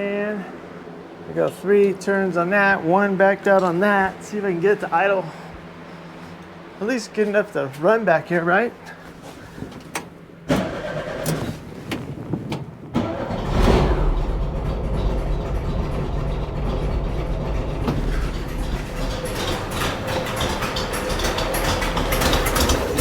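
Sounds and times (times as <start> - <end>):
engine starting and idling: 9.6 - 23.0.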